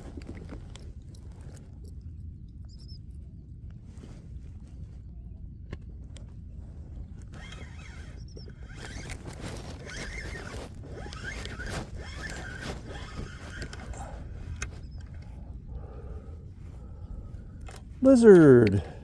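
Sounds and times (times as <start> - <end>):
fishing reel ratcheting whir: 7.3 - 15.1.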